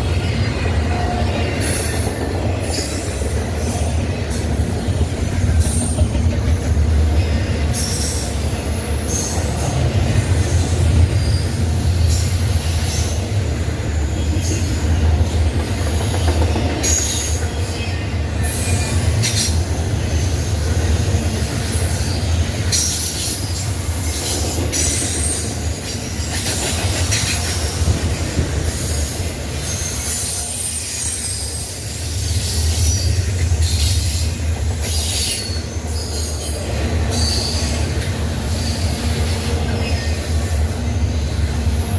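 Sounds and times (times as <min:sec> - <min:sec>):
freight train rumbling past: 0:00.0 - 0:41.9
train wheel squeals: 0:00.0 - 0:41.9.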